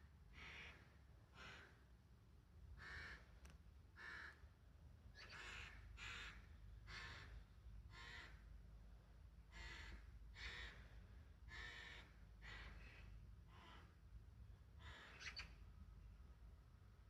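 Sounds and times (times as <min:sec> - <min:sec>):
crows cawing: 0:00.4 - 0:01.8, 0:02.8 - 0:03.3, 0:04.0 - 0:04.4, 0:05.3 - 0:08.4, 0:09.5 - 0:14.0, 0:14.8 - 0:15.4.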